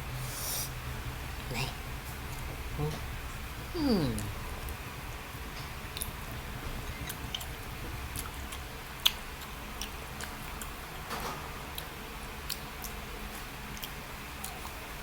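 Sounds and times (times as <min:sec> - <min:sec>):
steady low hum: 0:00.0 - 0:15.0
chewing: 0:06.9 - 0:10.8, 0:11.7 - 0:14.8.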